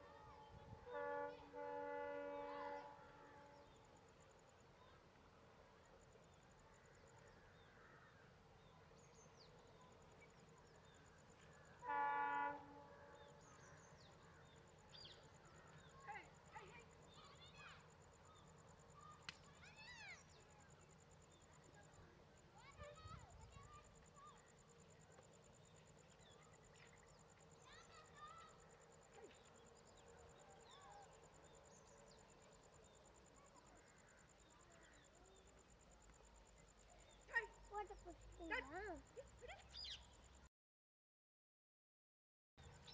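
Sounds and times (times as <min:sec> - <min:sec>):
train horn blast: 0:00.0 - 0:03.8, 0:11.8 - 0:13.6
birds chirping: 0:36.6 - 0:40.2
bird chirps: 0:39.6 - 0:40.4.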